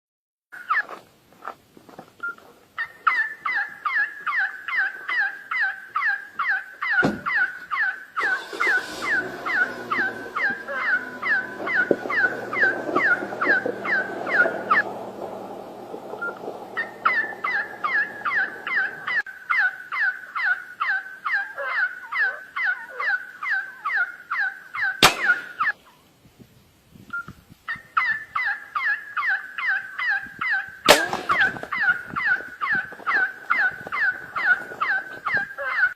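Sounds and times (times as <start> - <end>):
bird call repeated rapidly: 2.2 - 14.8, 16.2 - 25.8
low hum: 8.2 - 19.2.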